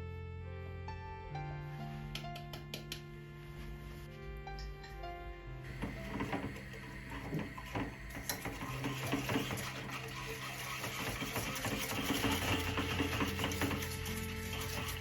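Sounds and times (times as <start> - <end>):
soft background music: 0.0 - 15.0
dishes and cutlery clinking: 5.8 - 15.0.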